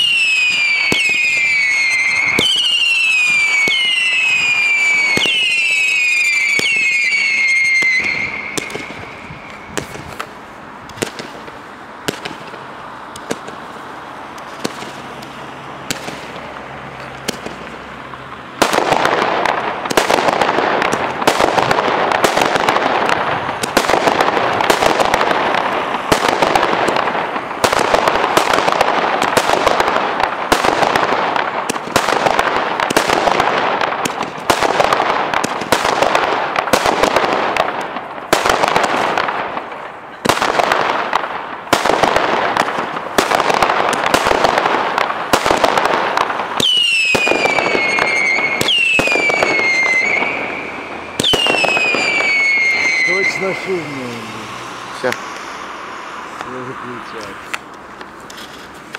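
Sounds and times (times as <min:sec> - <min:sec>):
fireworks whistles falling in pitch: 0:00.0 - 0:10.3, 0:46.4 - 0:56.4
fireworks bangs and crackling: 0:00.0 - 0:58.9.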